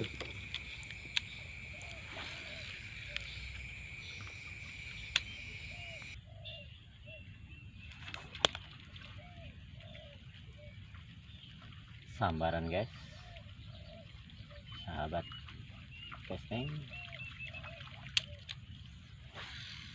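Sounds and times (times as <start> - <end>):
high insect drone: 0.0 - 6.2
short low calls: 0.0 - 6.2
sharp clicks: 4.2 - 6.2.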